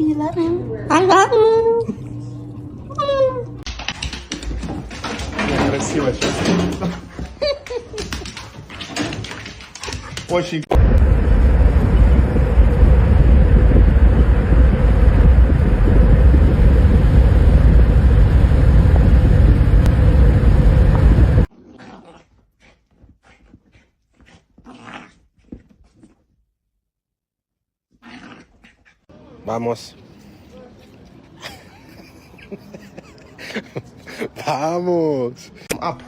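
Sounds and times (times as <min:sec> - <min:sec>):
dog growling: 0:21.5 - 0:26.2, 0:28.0 - 0:29.0.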